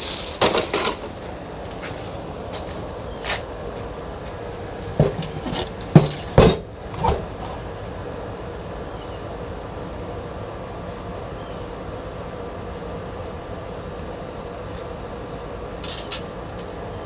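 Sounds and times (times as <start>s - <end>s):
steady background hum: 0.0s - 17.0s
metallic clanks and knocks: 4.8s - 7.7s.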